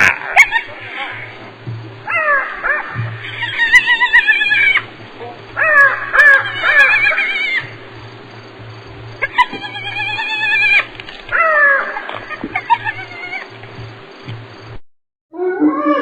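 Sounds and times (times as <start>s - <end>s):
hyena giggling calls: 0.0s - 1.4s, 5.6s - 7.7s, 11.4s - 13.6s.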